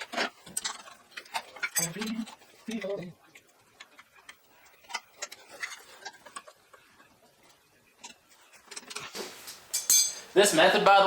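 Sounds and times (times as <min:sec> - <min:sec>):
small metal parts clicking: 0:00.4 - 0:02.9.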